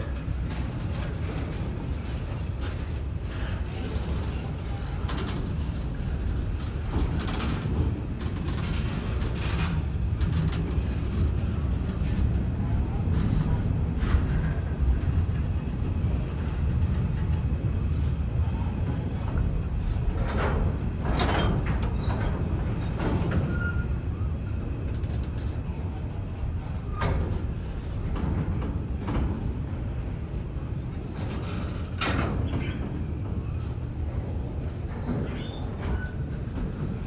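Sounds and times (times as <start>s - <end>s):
train rumbling on track: 0.0s - 37.0s.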